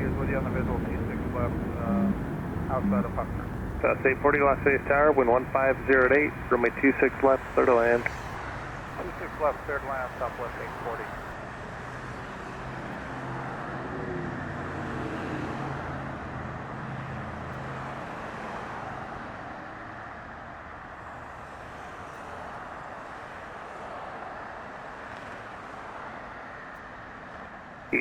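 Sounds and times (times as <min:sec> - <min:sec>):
distant jet engines roaring: 0:00.0 - 0:11.8.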